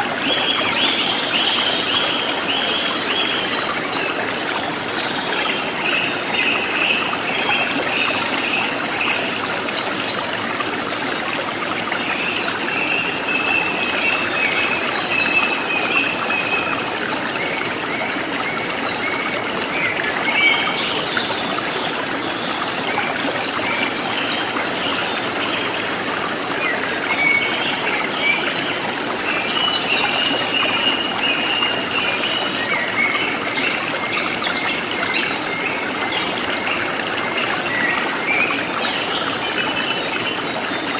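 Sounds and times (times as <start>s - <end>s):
stream babbling: 0.0s - 40.9s.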